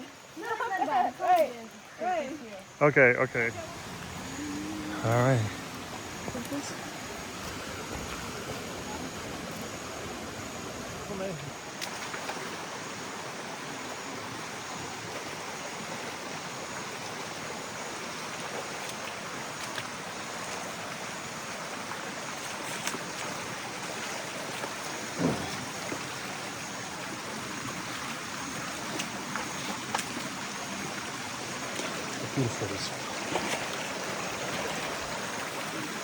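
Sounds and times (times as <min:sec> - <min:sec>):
stream water rushing: 0:00.0 - 0:36.0
short bump: 0:25.2 - 0:25.8.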